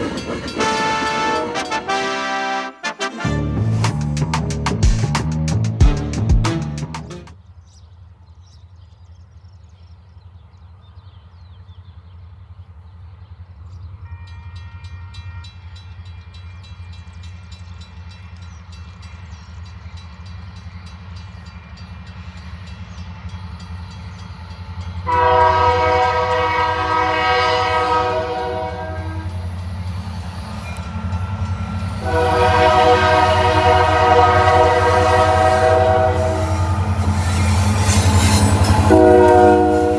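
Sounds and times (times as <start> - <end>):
locomotive rumbling: 0.0 - 14.1, 15.6 - 39.9
faint multi-note train horn: 0.5 - 3.8, 14.0 - 16.0, 25.0 - 30.0, 31.8 - 37.6, 38.2 - 39.9
loud chord horn blast: 0.6 - 4.1, 25.1 - 29.3, 32.0 - 36.9, 38.8 - 39.9.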